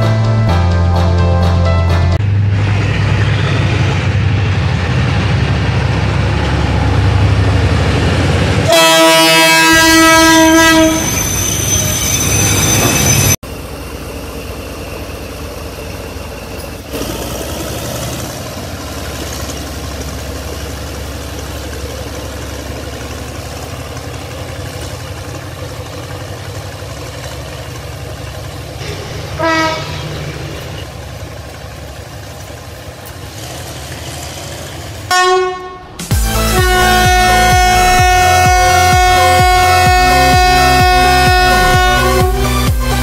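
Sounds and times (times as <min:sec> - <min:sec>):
train running on track: 0:00.0 - 0:43.0
train horn toot: 0:08.6 - 0:11.2, 0:28.8 - 0:30.2, 0:35.1 - 0:42.5.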